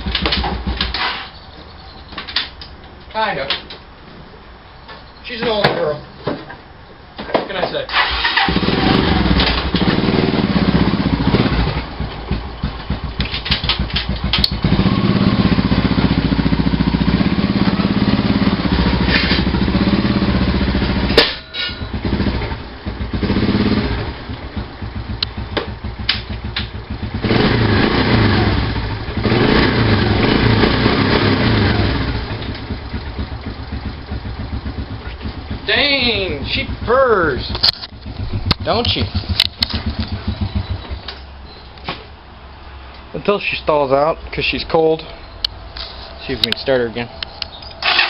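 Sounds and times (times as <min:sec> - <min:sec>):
single-cylinder engine running: 0:07.9 - 0:21.2, 0:21.8 - 0:41.2, 0:47.8 - 0:48.0
engine pop: 0:24.6 - 0:26.9, 0:36.4 - 0:42.1.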